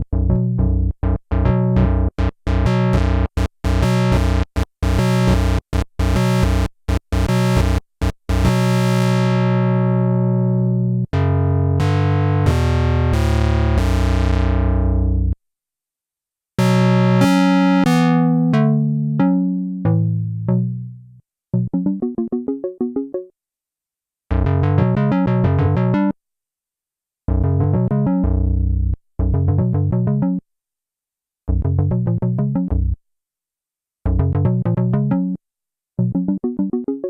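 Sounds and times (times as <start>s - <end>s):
synthesizer playing chords: 0.2s - 6.6s, 16.6s - 21.0s, 21.6s - 23.3s, 36.0s - 37.0s.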